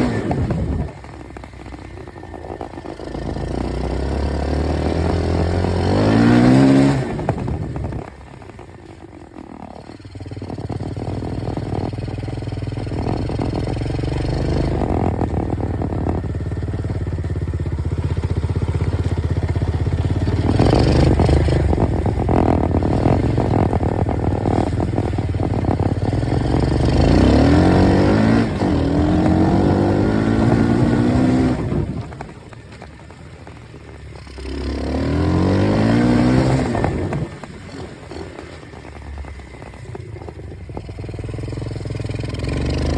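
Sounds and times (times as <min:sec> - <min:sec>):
dirt bike engine revving: 0:00.0 - 0:00.9, 0:03.0 - 0:07.9, 0:19.5 - 0:32.2, 0:34.4 - 0:38.5, 0:41.4 - 0:42.9.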